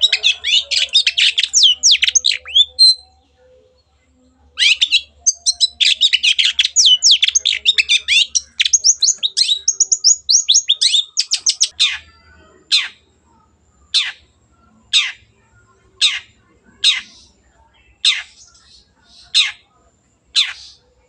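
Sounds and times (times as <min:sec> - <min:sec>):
shrike singing chirps and whistles: 0:00.0 - 0:03.2, 0:04.6 - 0:12.0.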